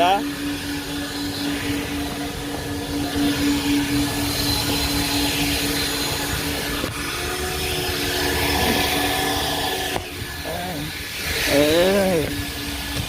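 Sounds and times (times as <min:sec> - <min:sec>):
vacuum whining rush of air: 0:00.0 - 0:13.0.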